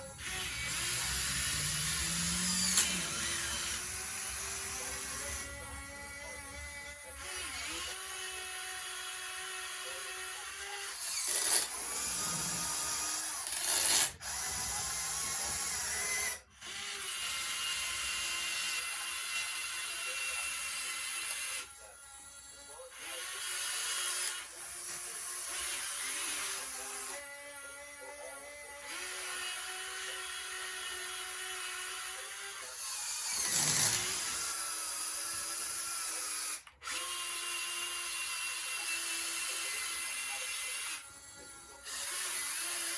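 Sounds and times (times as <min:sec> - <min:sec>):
whine of electric motors and pumps: 0:00.0 - 0:42.9.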